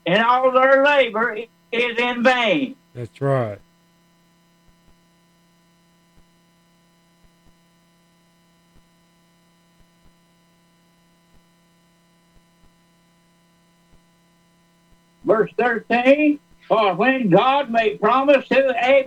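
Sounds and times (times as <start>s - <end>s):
faint electrical hum: 0.0s - 19.0s
faint irregular ticks: 4.6s - 10.3s, 11.0s - 15.2s.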